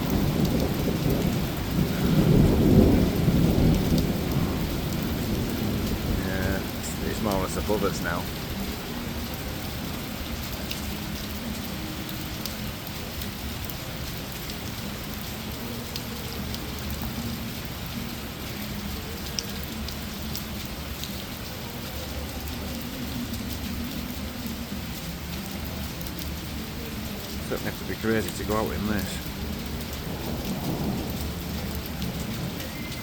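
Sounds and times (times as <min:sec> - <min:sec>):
heavy rain pouring: 0:00.0 - 0:33.0.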